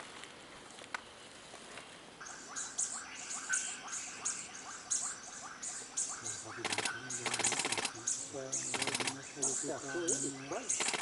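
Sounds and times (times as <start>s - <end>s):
bird calling short sharp notes: 2.2s - 11.0s.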